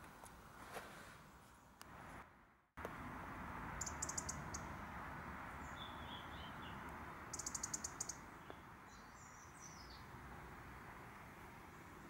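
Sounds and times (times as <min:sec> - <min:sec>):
steady outdoor hiss: 0:00.0 - 0:12.0
small birds calling: 0:03.8 - 0:04.8, 0:05.4 - 0:10.1.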